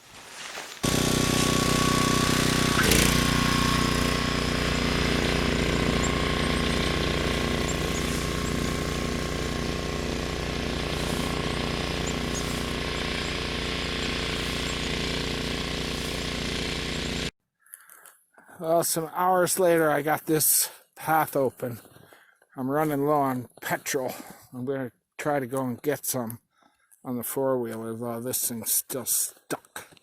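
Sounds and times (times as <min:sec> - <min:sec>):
engine running steadily: 0:00.8 - 0:17.3.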